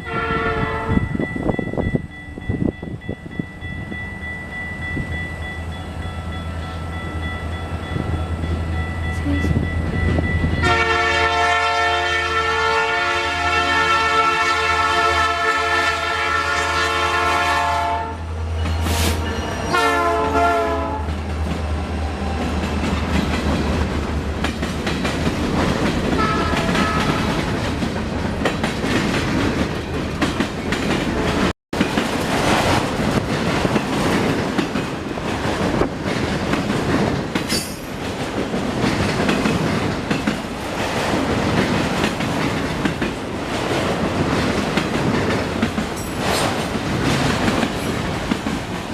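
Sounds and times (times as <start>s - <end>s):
locomotive horn blast: 0.0s - 1.0s, 10.6s - 18.3s, 19.0s - 21.2s, 26.2s - 27.5s
rail cars clacking over track: 0.0s - 48.9s.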